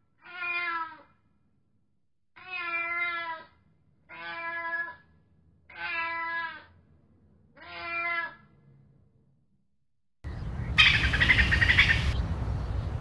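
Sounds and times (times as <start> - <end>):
cat meowing: 0.2 - 1.0, 2.4 - 3.5, 4.1 - 5.0, 5.7 - 6.7, 7.6 - 8.4.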